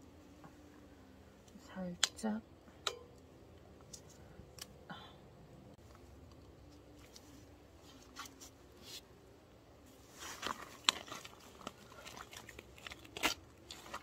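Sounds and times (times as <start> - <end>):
hands rustling raw meat: 9.9 - 14.0.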